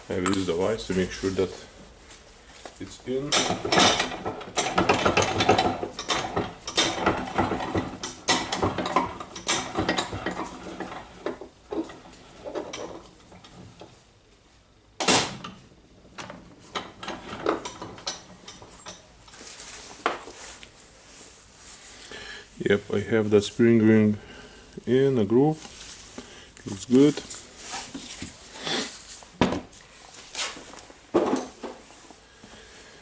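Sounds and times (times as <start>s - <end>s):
metal parts clinking and scraping: 3.2s - 13.6s.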